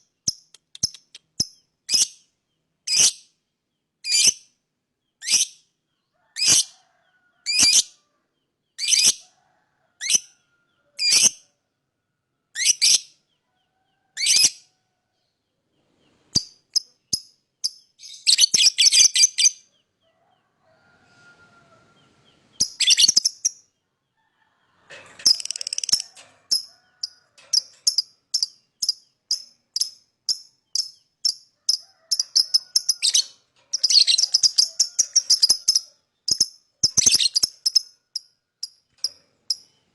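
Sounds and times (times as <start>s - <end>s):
lovebird chirping: 16.0s - 19.9s, 22.0s - 23.8s, 25.2s - 39.9s.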